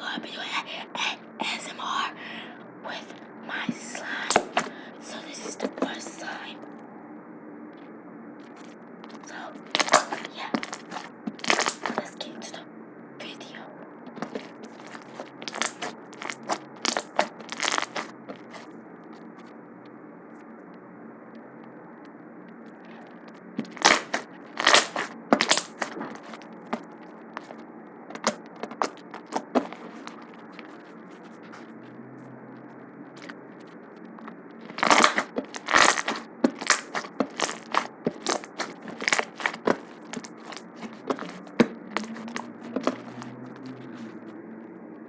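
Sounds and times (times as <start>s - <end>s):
slime popping and crackling: 3.8s - 4.7s, 9.2s - 12.2s, 14.2s - 18.7s, 23.6s - 30.8s, 34.6s - 43.2s.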